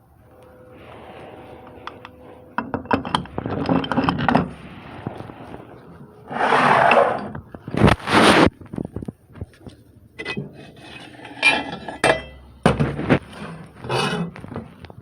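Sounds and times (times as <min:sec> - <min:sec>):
metal parts clinking and scraping: 0:02.6 - 0:04.6, 0:06.3 - 0:07.5, 0:10.2 - 0:12.4.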